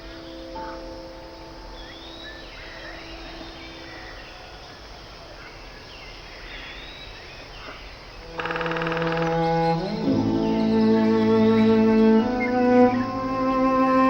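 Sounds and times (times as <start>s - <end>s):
faint held musical notes: 0.0s - 5.8s, 8.2s - 14.0s
outdoor background hiss: 0.0s - 14.0s
small birds chirping: 0.0s - 14.0s
loud string music: 8.3s - 14.0s.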